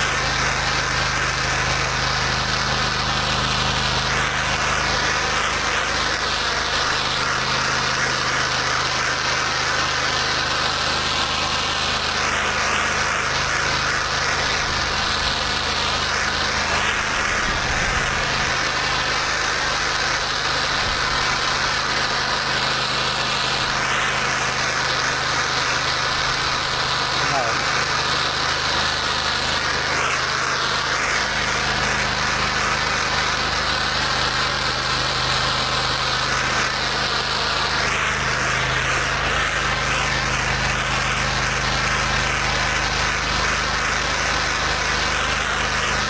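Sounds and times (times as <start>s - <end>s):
high-pressure water spray hiss: 0.0s - 46.0s
pressure washer engine running: 0.0s - 46.0s.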